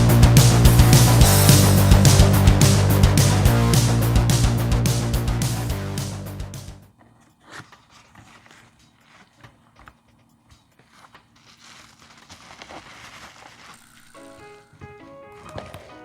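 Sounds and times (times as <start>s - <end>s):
music: 0.0s - 6.8s, 14.1s - 16.0s
packaging crinkling and rustling: 7.0s - 16.0s.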